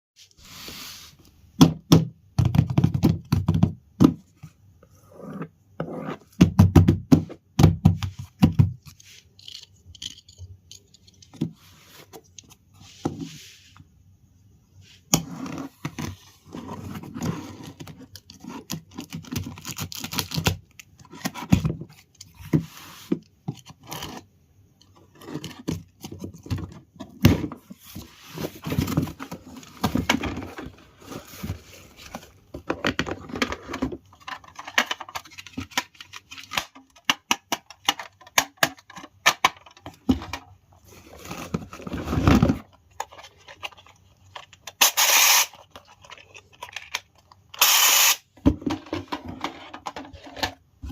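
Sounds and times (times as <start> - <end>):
small plastic parts clattering: 8.2 - 11.6, 24.8 - 50.9.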